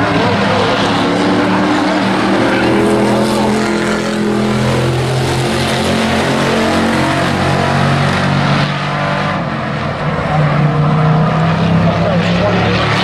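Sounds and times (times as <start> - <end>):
model truck engines racing: 0.0 - 13.0.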